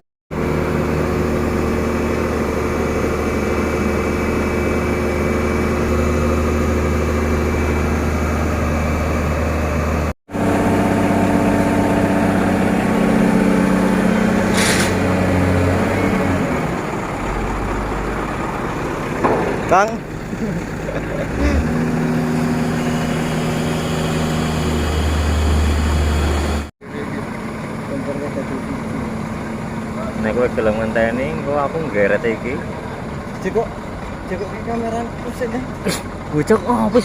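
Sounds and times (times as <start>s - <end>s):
heavy diesel engine idling: 0.4s - 37.0s
short hiss: 14.5s - 15.0s.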